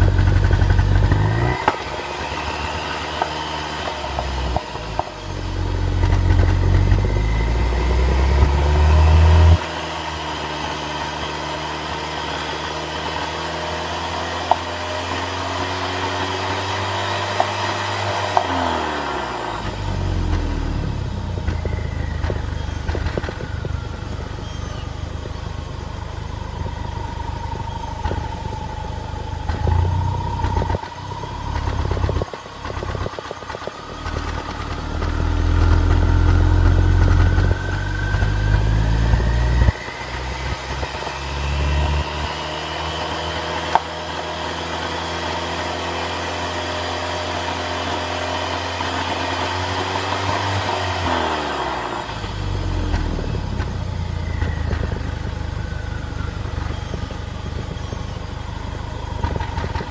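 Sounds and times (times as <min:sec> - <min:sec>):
faint rising whine: 0:00.0 - 0:45.7
engine misfiring rumble: 0:00.0 - 0:59.9.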